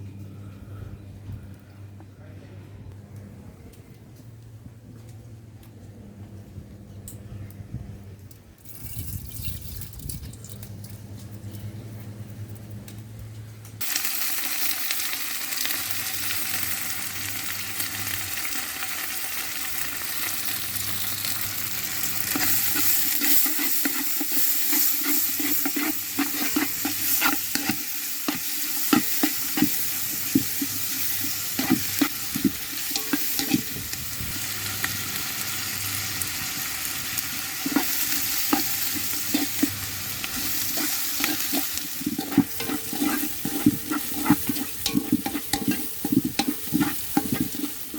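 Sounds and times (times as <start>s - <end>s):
food sizzling in a pan: 13.8s - 47.9s
spoon knocking and scraping pan: 22.3s - 33.8s, 37.6s - 47.9s.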